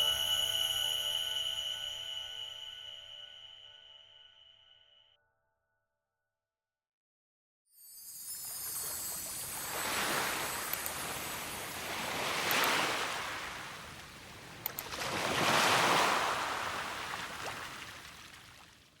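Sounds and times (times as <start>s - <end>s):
rushing water in surges: 8.7s - 19.0s.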